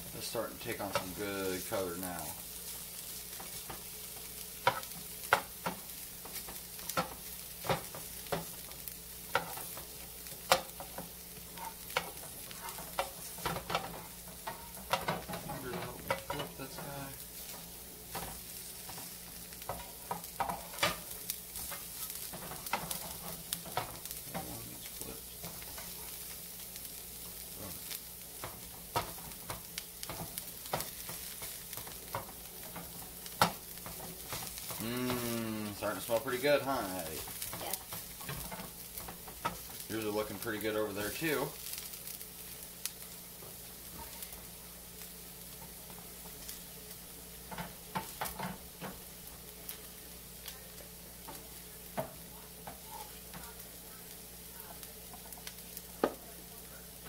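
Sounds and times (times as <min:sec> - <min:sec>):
mushrooms sizzling in a pan: 0:00.0 - 0:57.0
wooden spatula scraping a pan: 0:47.5 - 0:49.1.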